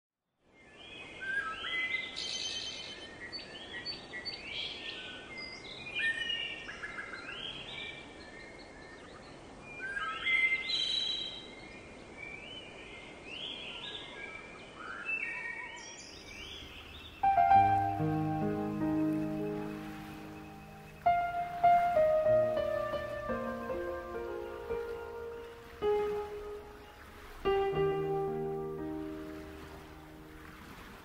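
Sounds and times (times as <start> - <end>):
birds chirping and whistling: 14.9 - 28.0
faint steady hiss: 16.0 - 31.0.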